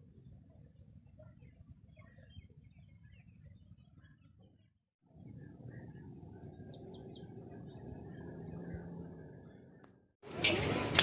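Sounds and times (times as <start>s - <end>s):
small birds chirping: 0.2s - 10.0s
low background rumble: 5.1s - 10.2s.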